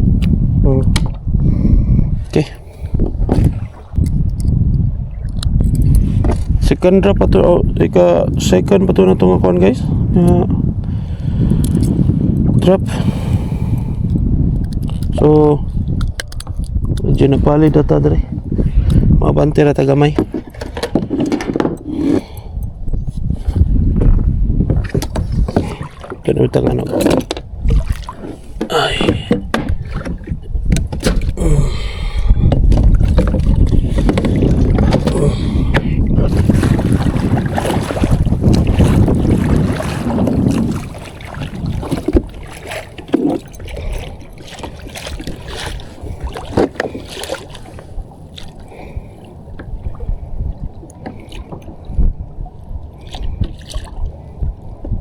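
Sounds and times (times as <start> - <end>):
rumbling wind and water: 0.0 - 55.0.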